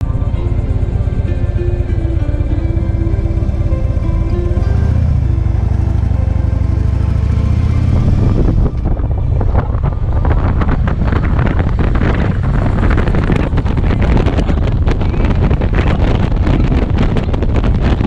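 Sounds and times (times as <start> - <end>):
motorcycle engine: 0.0 - 18.0
music: 0.0 - 18.0
road noise: 0.0 - 18.0
wind buffeting microphone: 0.0 - 18.0.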